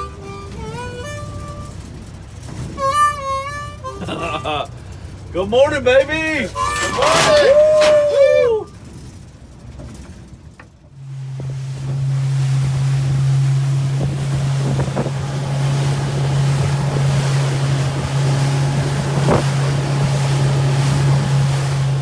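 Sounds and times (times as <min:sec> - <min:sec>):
boat motor humming: 0:00.0 - 0:22.0
wind buffeting microphone: 0:06.6 - 0:22.0
rushing water: 0:11.0 - 0:22.0.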